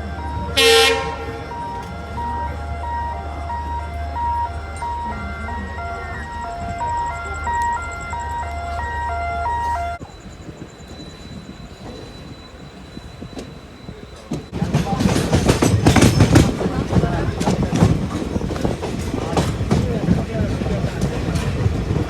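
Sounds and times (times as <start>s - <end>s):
electronic beep-like tune: 0.0s - 11.0s.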